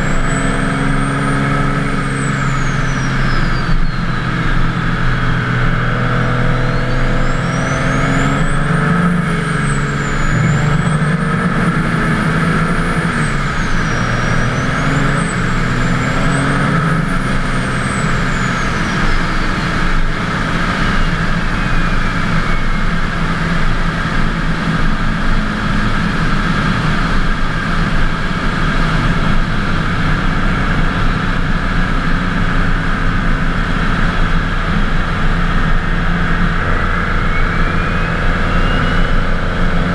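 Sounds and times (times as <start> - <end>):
turbo whistle: 0.0 - 20.1, 20.8 - 23.4, 35.9 - 39.9
diesel engine running loudly: 0.0 - 39.9.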